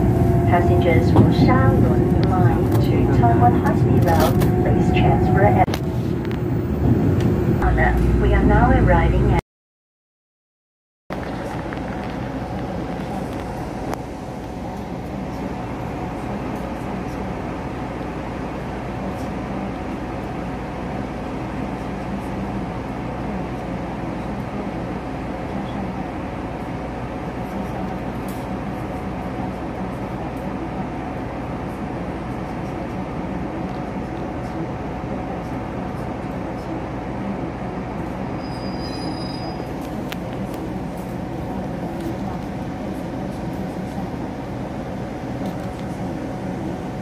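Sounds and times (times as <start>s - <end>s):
train wheels rumbling on track: 0.0s - 9.3s
faint hum: 0.0s - 9.4s
passenger train rumbling: 0.0s - 9.4s, 11.1s - 47.0s
high squeal: 38.4s - 39.7s.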